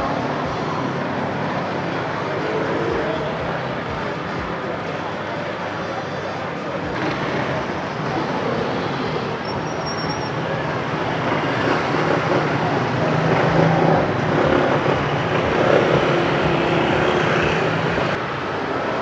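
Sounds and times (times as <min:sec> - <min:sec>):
street traffic passing: 0:00.0 - 0:19.0.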